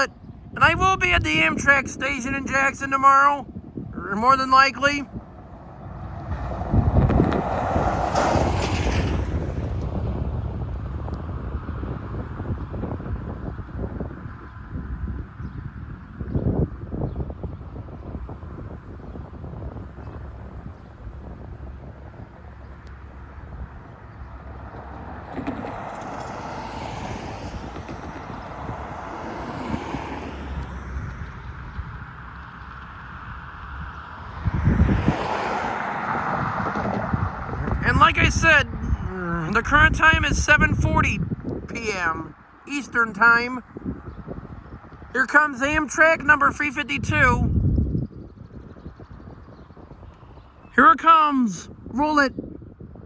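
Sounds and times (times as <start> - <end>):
wind buffeting microphone: 0.0 - 53.0
vehicle passing by: 5.2 - 12.6, 20.2 - 38.0.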